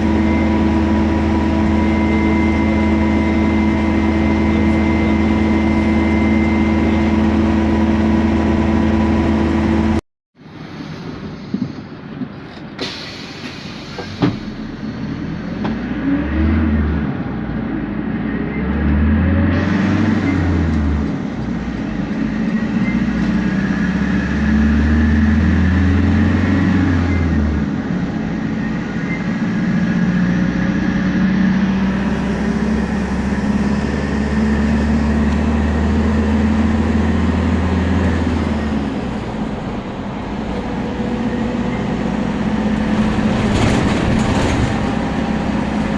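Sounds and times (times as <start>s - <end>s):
turbo and differential whine: 0.0s - 10.0s
bus engine accelerating: 0.0s - 45.9s.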